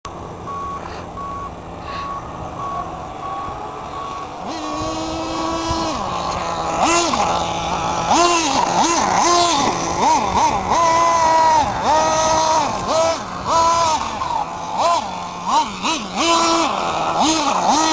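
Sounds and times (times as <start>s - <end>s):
model engine idling and revving: 0.1s - 17.9s
electronic beeping: 0.4s - 4.2s.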